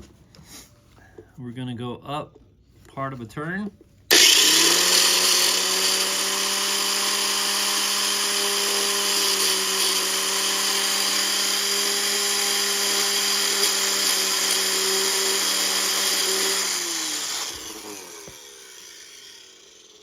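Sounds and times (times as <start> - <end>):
electric drill motor whine: 4.1 - 20.0.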